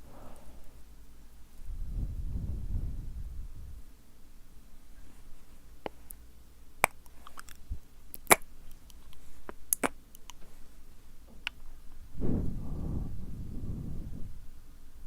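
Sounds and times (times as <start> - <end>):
breath into microphone: 0.0 - 0.8, 12.2 - 14.4
tongue and lip clicks: 6.8 - 10.4.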